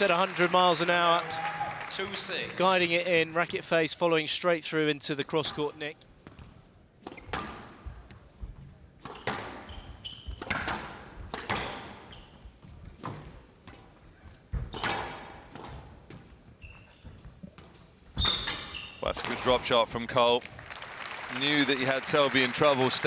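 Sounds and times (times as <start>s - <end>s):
shoes squeaking on court: 6.2s - 19.6s.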